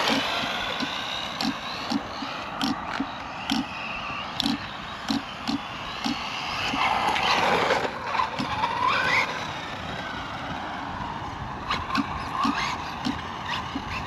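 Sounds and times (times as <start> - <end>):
electric motor whine: 0.0 - 14.0
toy car tyre and drivetrain noise: 0.0 - 14.0.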